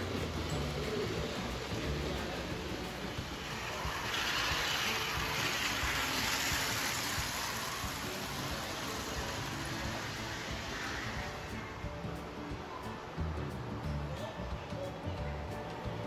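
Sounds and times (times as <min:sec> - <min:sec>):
model train rumbling on track: 0:00.0 - 0:11.7.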